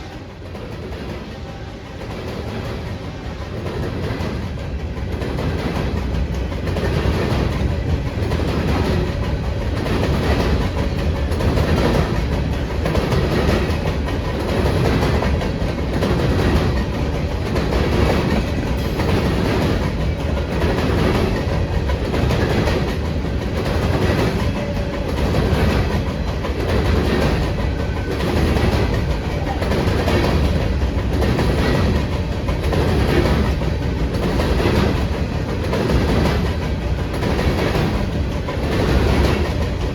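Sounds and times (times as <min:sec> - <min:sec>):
train wheels clacking on rails: 0:00.0 - 0:39.9.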